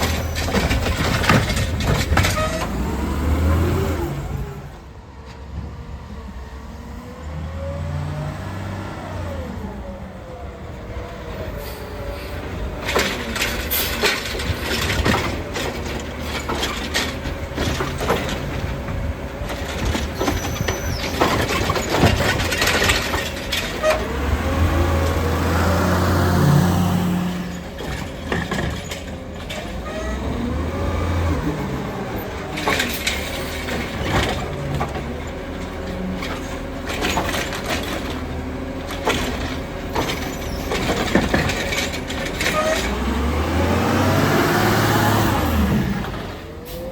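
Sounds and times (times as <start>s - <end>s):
metal clanks and bangs: 0.0s - 2.9s, 12.2s - 25.6s, 27.0s - 30.4s, 32.2s - 43.4s
garbage truck engine revving: 0.0s - 4.9s, 6.6s - 11.3s, 12.6s - 46.9s.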